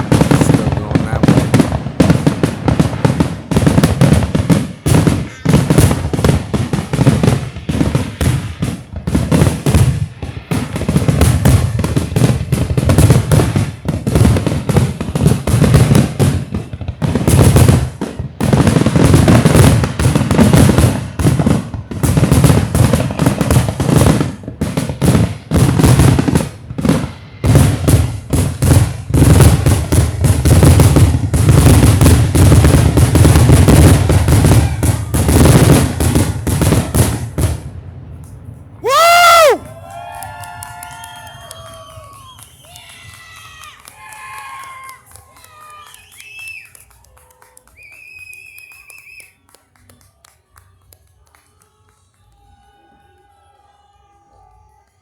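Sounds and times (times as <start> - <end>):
fireworks booming and crackling: 0.0 - 46.8.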